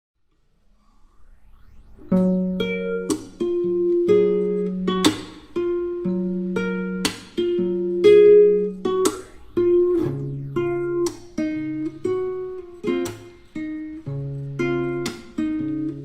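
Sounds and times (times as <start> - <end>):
acoustic guitar music: 2.1 - 16.0.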